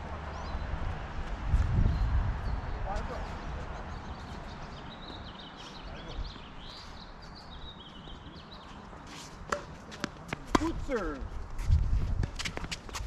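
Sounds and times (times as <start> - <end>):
small birds chirping: 0.2 - 10.2.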